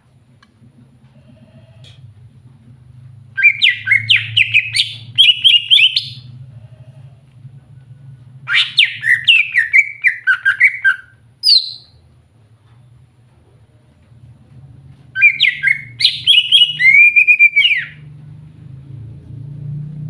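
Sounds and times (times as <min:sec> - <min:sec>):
steady low hum: 0:00.0 - 0:20.0
bird singing rapid sliding chirps: 0:03.4 - 0:06.3, 0:08.5 - 0:12.0, 0:15.2 - 0:18.0.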